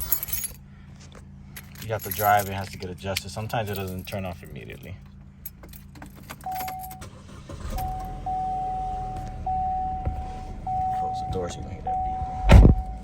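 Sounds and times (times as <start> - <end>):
keys jangling: 0.0 - 7.1
car engine idling: 0.0 - 13.0
car warning chime: 6.4 - 13.0.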